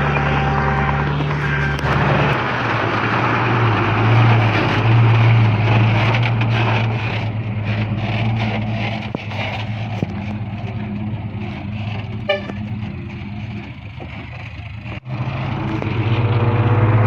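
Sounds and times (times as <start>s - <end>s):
rushing noise: 0.0s - 12.1s
diesel engine running: 0.0s - 17.0s.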